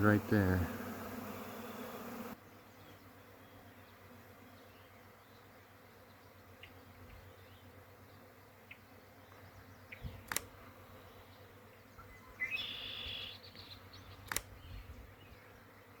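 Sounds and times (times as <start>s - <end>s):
bee swarm buzzing: 0.0s - 16.0s
sharp clicks: 10.2s - 10.5s, 14.2s - 14.6s
bird call: 12.0s - 14.4s.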